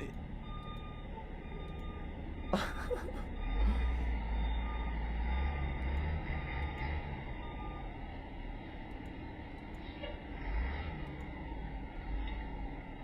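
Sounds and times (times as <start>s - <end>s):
passing vehicle engine rumble: 3.4s - 13.0s.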